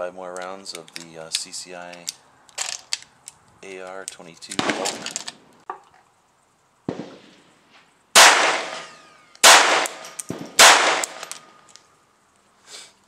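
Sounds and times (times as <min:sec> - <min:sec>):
pistol shots: 0:04.6 - 0:05.3, 0:06.9 - 0:07.5, 0:08.2 - 0:11.6.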